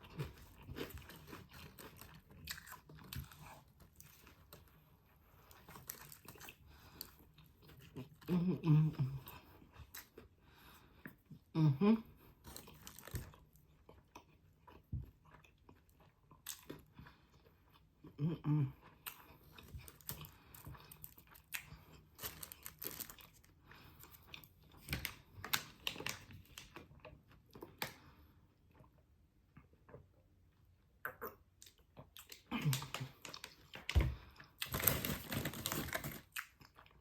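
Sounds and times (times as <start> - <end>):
crunchy chewing: 0.0 - 8.3
wet mouth clicks: 31.0 - 32.7.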